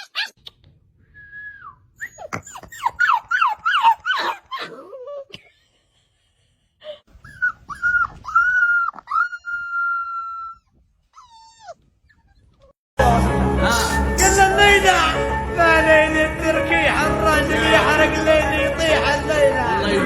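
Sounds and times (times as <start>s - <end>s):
dog whining and yelping: 0.0s - 0.6s, 1.2s - 5.3s, 7.1s - 12.8s.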